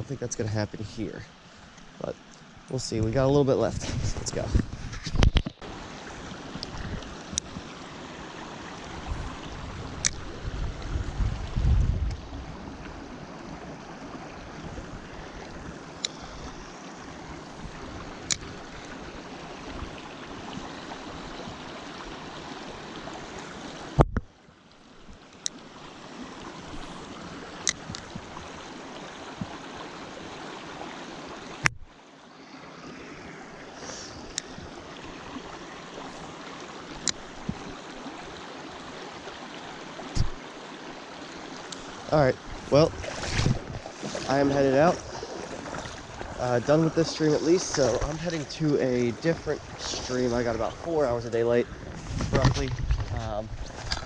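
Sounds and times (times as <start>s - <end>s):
mountain creek rushing: 0.0s - 54.0s
wind bumps on microphone: 3.7s - 5.6s, 8.9s - 12.9s, 40.1s - 40.4s, 42.4s - 46.4s, 49.3s - 54.0s.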